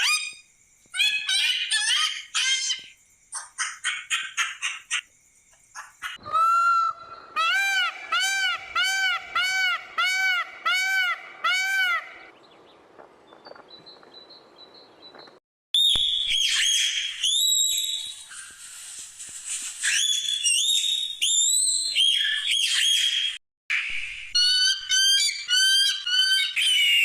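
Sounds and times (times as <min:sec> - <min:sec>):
bird calls: 0:00.0 - 0:18.7, 0:19.8 - 0:27.0
loud whistled bird calls: 0:13.7 - 0:18.7, 0:19.8 - 0:27.0.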